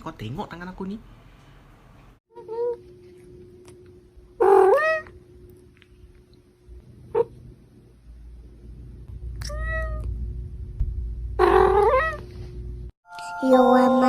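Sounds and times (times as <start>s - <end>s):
cat meowing: 4.4s - 5.1s, 9.4s - 10.1s, 11.4s - 12.3s.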